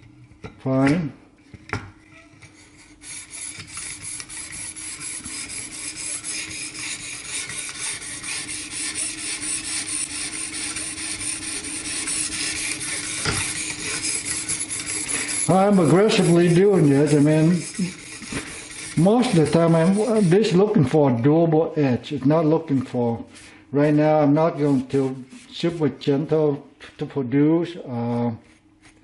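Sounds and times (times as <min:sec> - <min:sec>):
sharpening stone scraping knife edge: 0:02.2 - 0:20.3.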